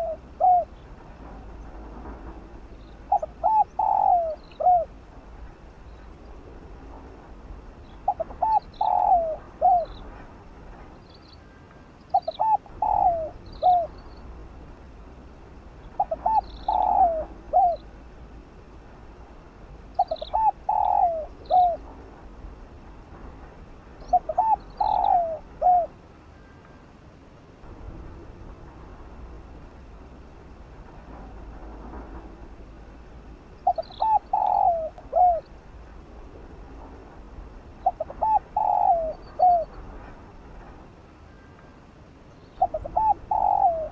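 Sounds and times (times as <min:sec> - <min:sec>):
dove cooing: 0:00.0 - 0:00.9, 0:03.1 - 0:05.0, 0:08.0 - 0:10.2, 0:12.1 - 0:14.0, 0:15.9 - 0:17.9, 0:19.9 - 0:21.9, 0:24.0 - 0:26.0, 0:33.6 - 0:35.5, 0:37.8 - 0:39.8, 0:42.6 - 0:43.9.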